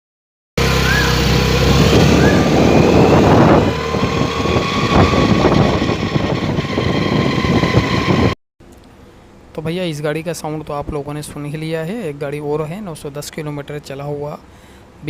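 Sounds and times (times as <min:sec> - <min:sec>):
gearbox whine: 0:00.6 - 0:08.4
scooter engine mechanical din: 0:00.6 - 0:08.4.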